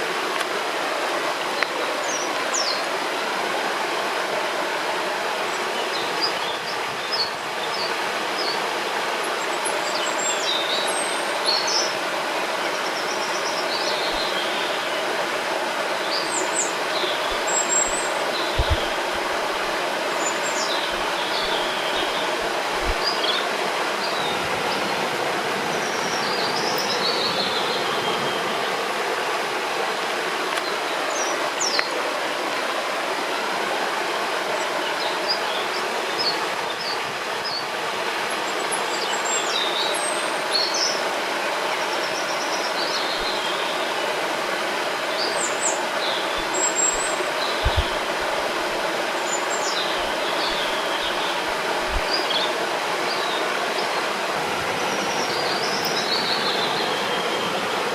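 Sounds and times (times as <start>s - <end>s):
rushing river water: 0.0s - 57.9s
birds chirping: 9.2s - 25.1s, 44.9s - 57.9s.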